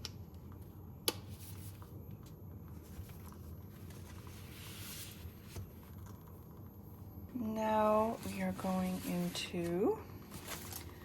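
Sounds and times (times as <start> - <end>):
low room hum: 0.0 - 11.0
soft paper rustling: 1.3 - 6.6, 7.9 - 11.0.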